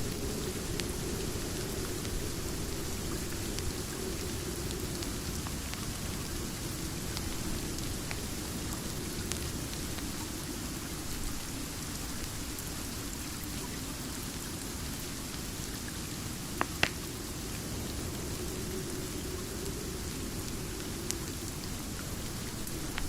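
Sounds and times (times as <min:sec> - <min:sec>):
fireplace crackling: 0:00.0 - 0:11.9, 0:16.6 - 0:23.0
steady rain: 0:00.0 - 0:23.0
fire popping: 0:16.6 - 0:23.0.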